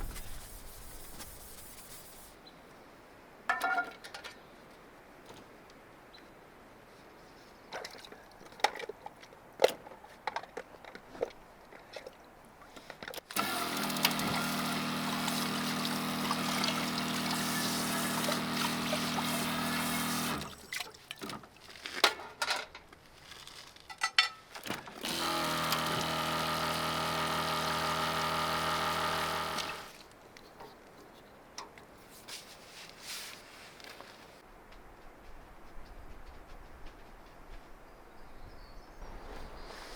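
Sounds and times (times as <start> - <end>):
water heater humming: 13.4 - 20.6, 25.0 - 30.0
water running: 13.8 - 20.9.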